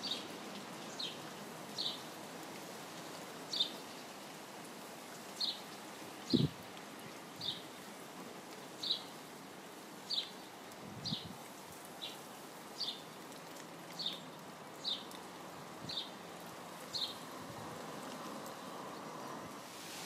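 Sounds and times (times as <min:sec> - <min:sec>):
songbird chirping: 0:00.0 - 0:02.1, 0:08.7 - 0:09.3, 0:10.0 - 0:11.3, 0:11.9 - 0:19.6
rain hiss: 0:00.0 - 0:20.0.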